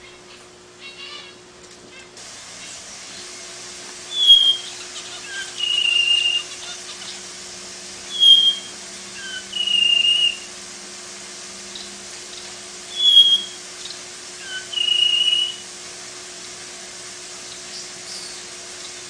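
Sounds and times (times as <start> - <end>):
faint steady hum: 0.0 - 19.0
bird whistling: 4.1 - 7.3, 8.0 - 10.6, 11.7 - 15.7, 17.5 - 19.0.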